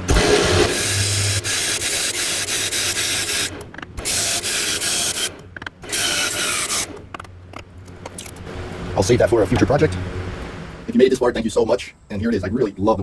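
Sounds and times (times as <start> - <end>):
wood turning on a lathe: 0.0 - 7.6.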